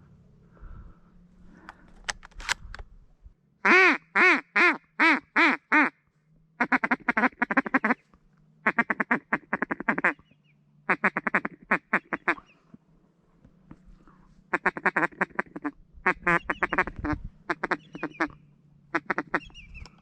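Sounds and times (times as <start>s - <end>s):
duck quacking: 3.6s - 6.0s, 6.6s - 8.0s, 8.6s - 10.2s, 10.9s - 12.5s, 14.5s - 19.6s.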